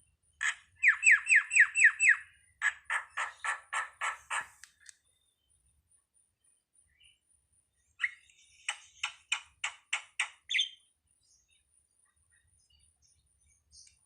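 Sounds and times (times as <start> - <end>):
starling calling harsh notes: 0.4 - 4.7.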